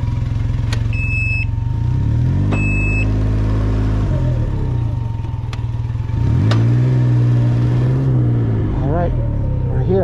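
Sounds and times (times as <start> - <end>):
engine running at low revs: 0.0 - 10.0
short electronic beep: 0.9 - 1.6, 2.5 - 3.1.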